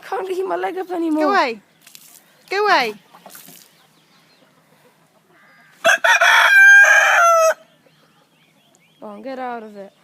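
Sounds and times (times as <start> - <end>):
rooster crowing: 5.4 - 7.7.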